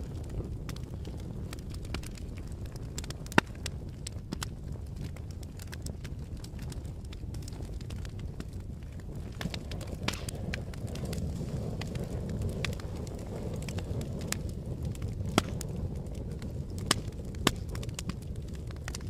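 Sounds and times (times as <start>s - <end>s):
fire crackling and popping: 0.0s - 19.0s.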